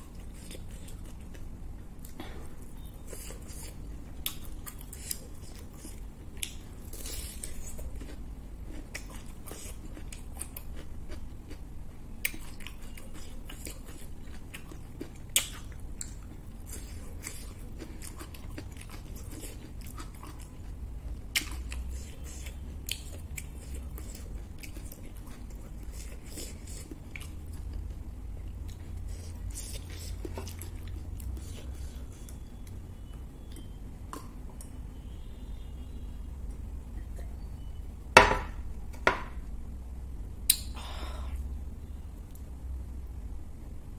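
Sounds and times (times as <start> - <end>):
person chewing food: 0.0 - 35.2.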